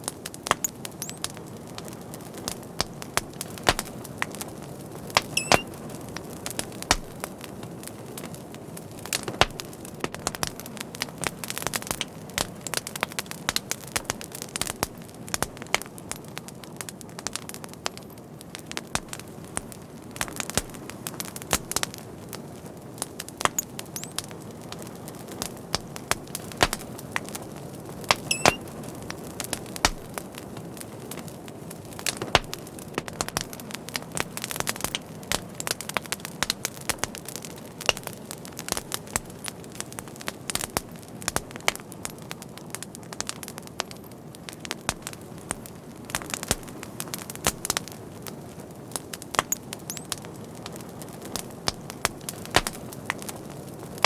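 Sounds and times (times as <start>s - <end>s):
fire crackling and popping: 0.0s - 54.0s
brief high whistle: 5.4s - 5.6s.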